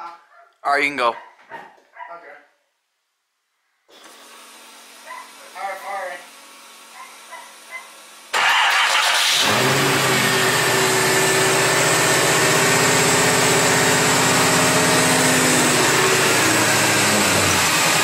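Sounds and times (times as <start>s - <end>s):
car engine starting and idling: 8.3s - 18.0s.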